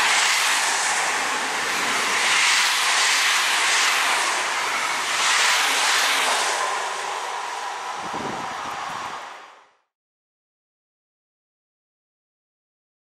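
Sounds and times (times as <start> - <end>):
train coaches rushing past: 0.0 - 9.8.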